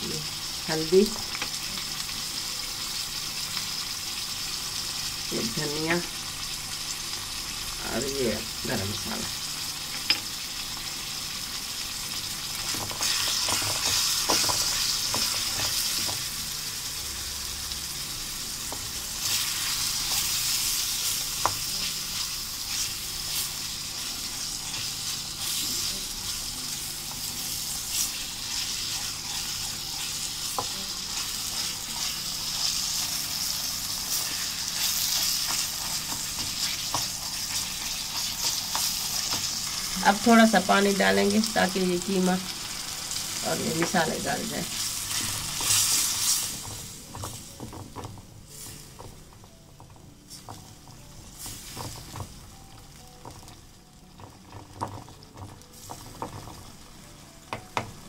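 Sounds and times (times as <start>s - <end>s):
mince sizzling in a wok: 0.0s - 58.0s
spatula scraping pan: 12.6s - 16.3s.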